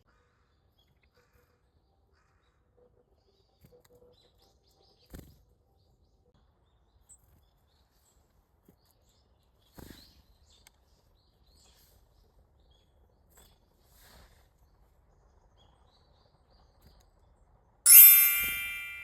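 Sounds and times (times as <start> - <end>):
bright ringing chime: 17.9 - 19.0
soft chirp: 17.9 - 19.0.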